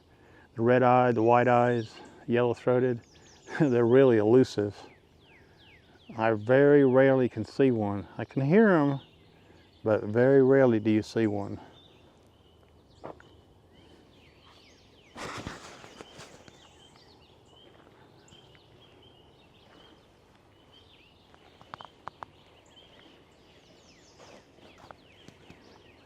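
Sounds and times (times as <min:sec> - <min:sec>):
songbirds chirping and trilling: 0:00.0 - 0:26.0
loud rustle: 0:15.1 - 0:16.7.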